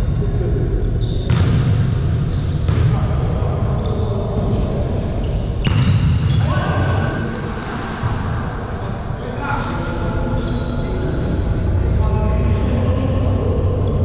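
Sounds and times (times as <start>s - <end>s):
shoe squeaks: 0.8s - 2.9s, 4.8s - 6.5s
volleyball hits echoing: 1.3s - 3.1s
murmur of voices: 2.8s - 5.6s, 6.2s - 14.0s.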